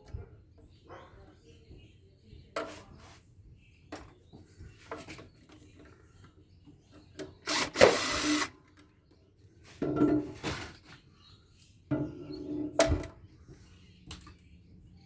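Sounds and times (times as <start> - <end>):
hand tools and metal clattering: 7.2 - 8.5.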